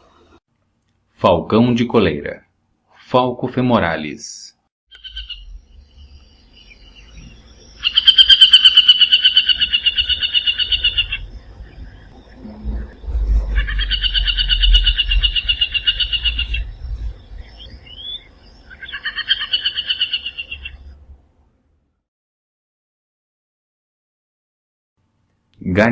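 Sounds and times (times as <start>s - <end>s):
falcon harsh kek calls: 18.8s - 20.6s.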